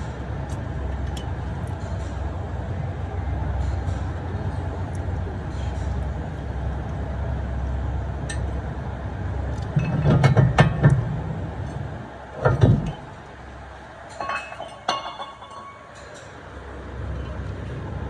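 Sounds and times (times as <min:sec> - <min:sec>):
low steady rumble: 0:00.0 - 0:18.0
metal parts clanking: 0:14.1 - 0:16.4.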